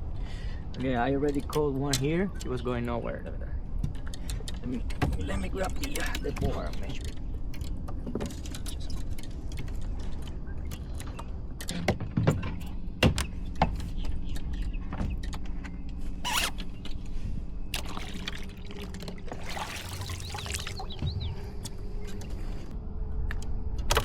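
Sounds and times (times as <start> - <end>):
steady low rumble: 0.0 - 24.0
water splashing and trickling: 17.7 - 21.6.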